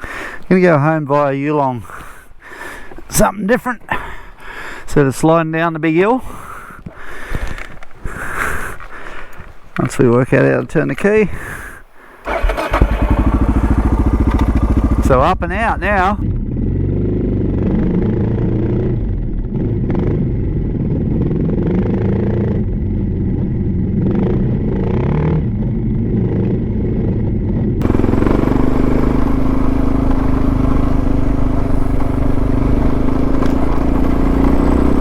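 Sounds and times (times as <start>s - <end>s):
motorcycle engine: 12.2s - 35.0s.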